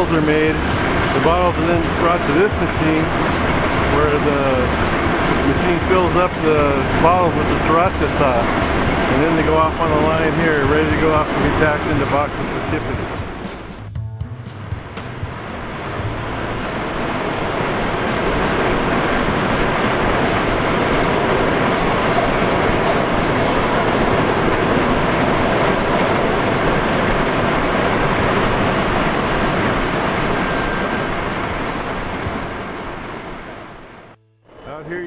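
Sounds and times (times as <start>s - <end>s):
bottling machinery rushing: 0.0s - 13.7s.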